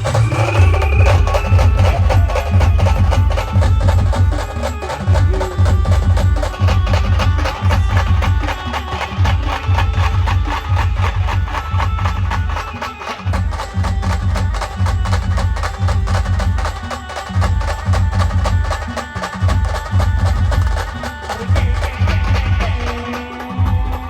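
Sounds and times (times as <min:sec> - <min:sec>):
band playing dance music: 0:00.0 - 0:24.0.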